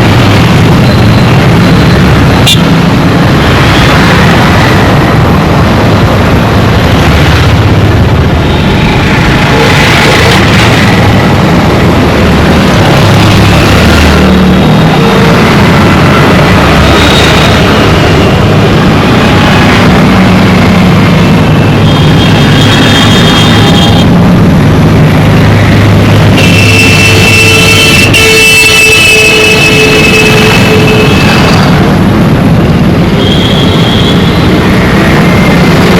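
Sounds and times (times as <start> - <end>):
traffic engines rumbling: 0.0 - 35.9
car horns: 26.4 - 31.7.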